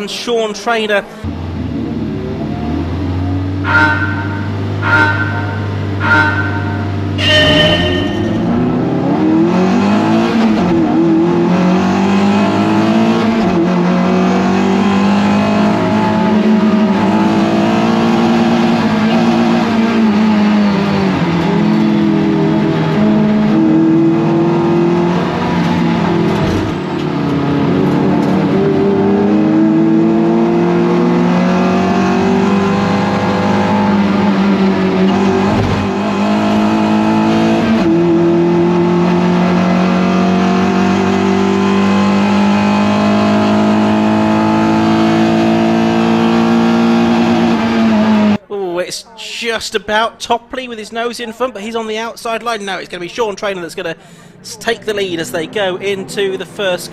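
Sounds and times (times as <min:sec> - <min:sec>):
race car engine revving: 0:01.2 - 0:48.4.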